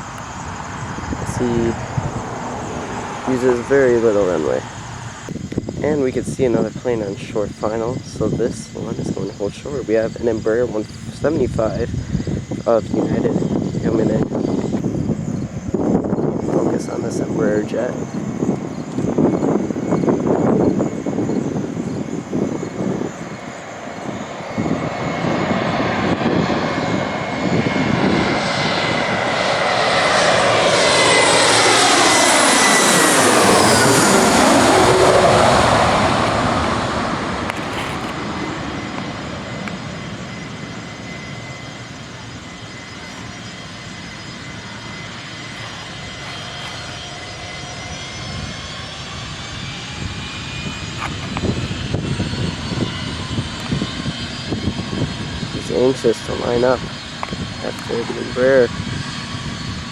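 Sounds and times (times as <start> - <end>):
jet engines whining past: 0.0 - 59.9.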